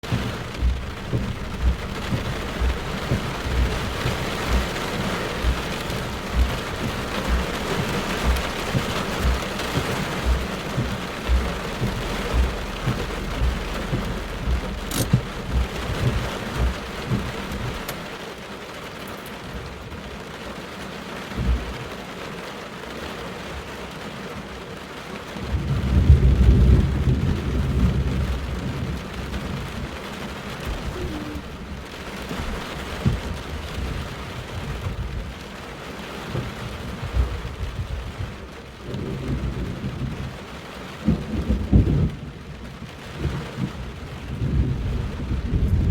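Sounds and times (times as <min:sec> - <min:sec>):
thunder rumbling: 0:00.0 - 0:18.2, 0:25.4 - 0:35.3, 0:36.4 - 0:40.4, 0:41.0 - 0:42.4, 0:43.2 - 0:45.9
heavy rain: 0:00.0 - 0:45.9.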